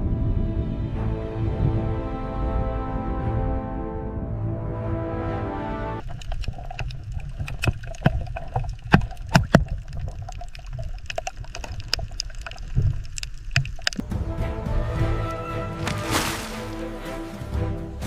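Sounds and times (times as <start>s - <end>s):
low rumble: 0.0s - 6.0s
music: 0.0s - 6.0s, 14.0s - 18.0s
sharp clicks and drips: 6.0s - 14.0s
water sloshing and splashing: 6.0s - 14.0s, 14.8s - 18.0s.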